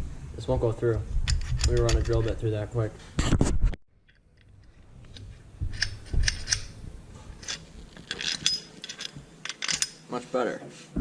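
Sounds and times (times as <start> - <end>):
tools clicking and clinking: 1.3 - 2.5, 4.0 - 6.8, 7.4 - 10.1.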